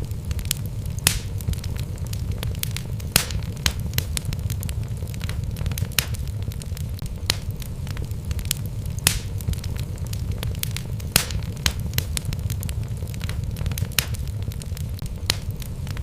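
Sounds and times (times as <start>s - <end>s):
logs crackling and popping: 0.0s - 16.0s
low rumble of flames: 0.0s - 16.0s.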